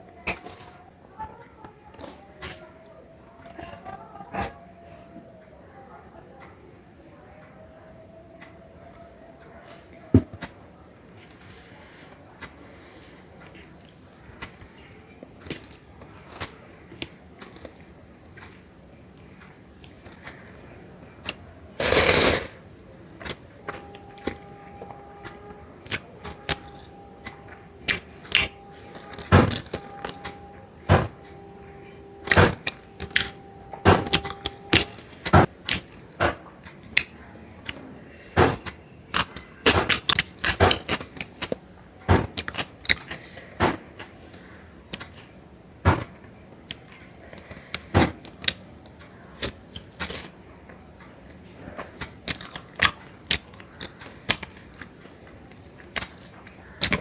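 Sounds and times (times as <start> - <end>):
chewing smacks and clicks: 52.0 - 57.0.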